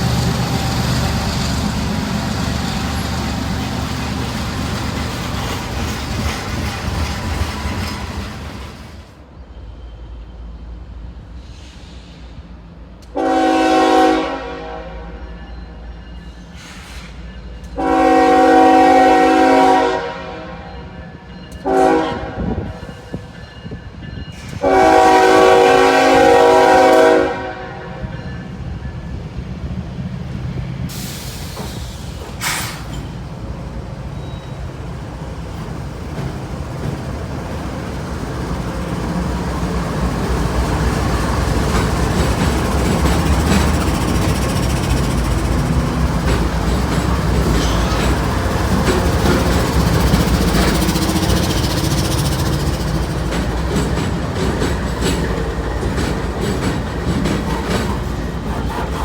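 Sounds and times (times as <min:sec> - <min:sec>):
wheels clacking on rails: 0:00.0 - 0:09.2, 0:20.8 - 0:59.0
train rumbling: 0:00.0 - 0:59.0
diesel locomotive horn: 0:13.1 - 0:15.4, 0:17.8 - 0:21.0, 0:21.6 - 0:23.2, 0:24.5 - 0:28.2.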